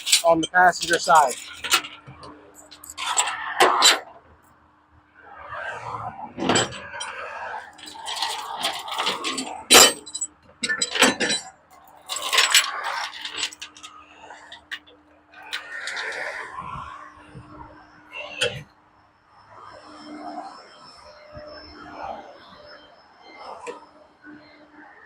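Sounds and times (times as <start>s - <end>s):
metallic clacks and clinks: 0.0s - 4.0s, 6.5s - 16.3s
highway traffic rushing past: 0.0s - 10.2s.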